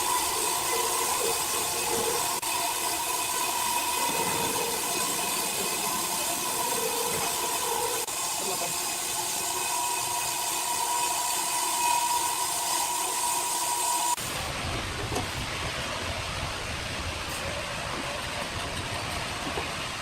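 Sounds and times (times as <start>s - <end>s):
sawmill machinery hiss and whine: 0.0s - 20.0s.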